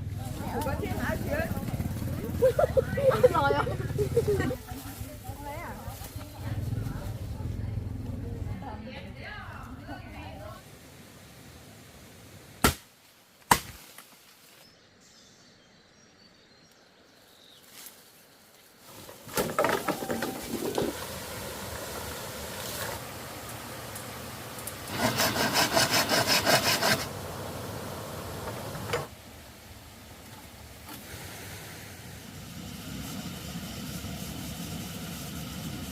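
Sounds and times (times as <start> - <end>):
handsaw rasping through bamboo: 24.9 - 27.2.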